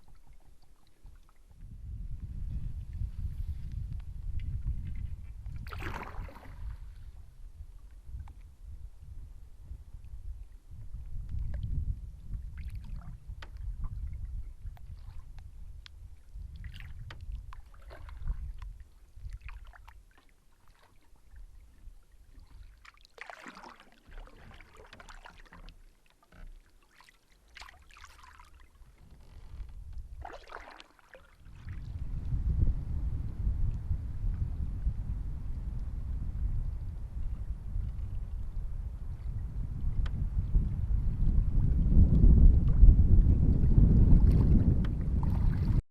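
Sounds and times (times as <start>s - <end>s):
wind rumbling on microphone: 0.0s - 20.1s, 28.6s - 30.7s, 31.3s - 45.8s
canoe paddle splashing: 4.3s - 8.5s, 12.4s - 32.1s.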